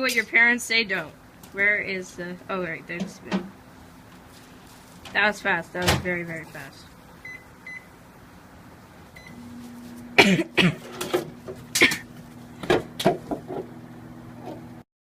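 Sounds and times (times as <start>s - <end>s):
microwave oven humming: 1.1s - 14.8s
microwave keypad beep: 7.2s - 7.9s, 9.2s - 9.4s.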